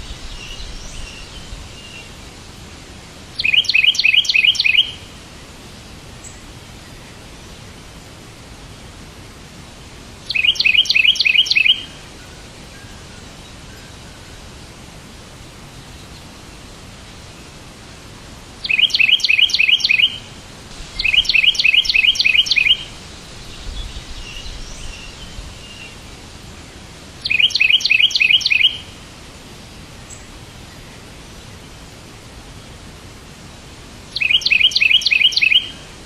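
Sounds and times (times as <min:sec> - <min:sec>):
songbird chirping: 0:00.0 - 0:05.2, 0:10.2 - 0:14.6, 0:18.6 - 0:29.0, 0:34.1 - 0:36.0
steady hiss: 0:00.0 - 0:36.0.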